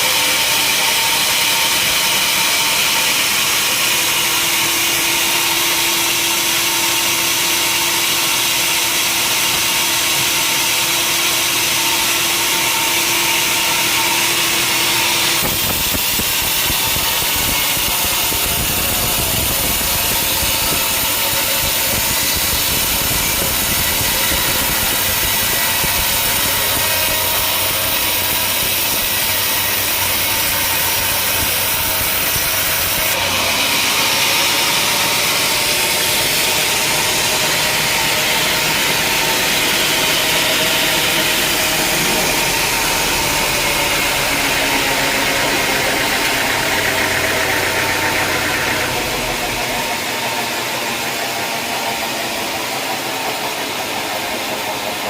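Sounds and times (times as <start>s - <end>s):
sawmill machinery humming: 0.0s - 55.0s
deep rumbling engine: 15.3s - 55.0s.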